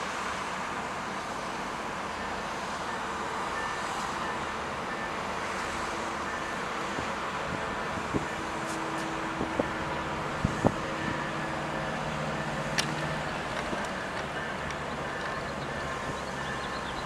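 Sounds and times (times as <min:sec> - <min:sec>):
vehicle humming: 0:08.0 - 0:17.0.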